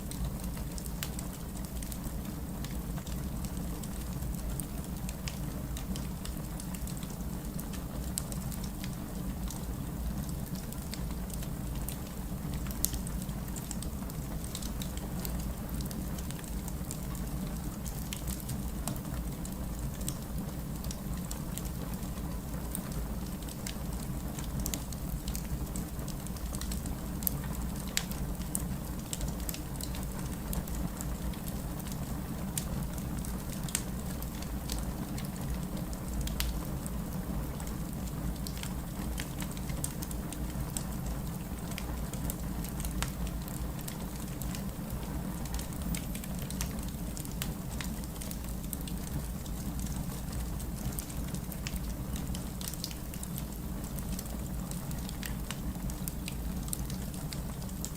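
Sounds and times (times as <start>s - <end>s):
low fire rumble: 0.0s - 57.9s
campfire crackling and popping: 22.6s - 36.9s, 37.5s - 57.9s.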